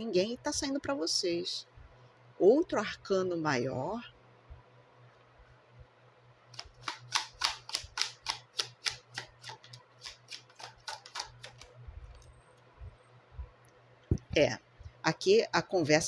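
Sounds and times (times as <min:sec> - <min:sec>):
faint steady hum: 0:00.0 - 0:16.0
cards clicking on a table: 0:06.6 - 0:11.7.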